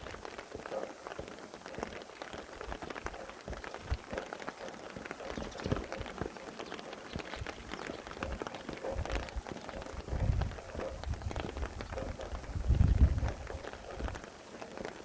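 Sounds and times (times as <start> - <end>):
raindrops pattering: 0.0 - 15.0.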